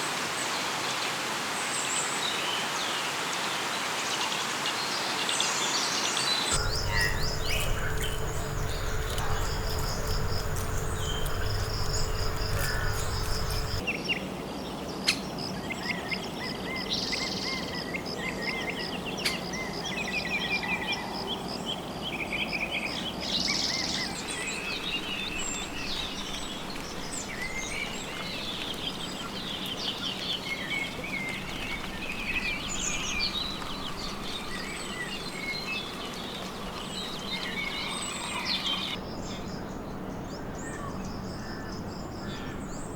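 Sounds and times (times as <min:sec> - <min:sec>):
birds chirping and calling: 0:06.6 - 0:13.8
insects buzzing: 0:06.6 - 0:13.8
low rumble: 0:06.6 - 0:13.8
steady low hum: 0:06.6 - 0:13.8.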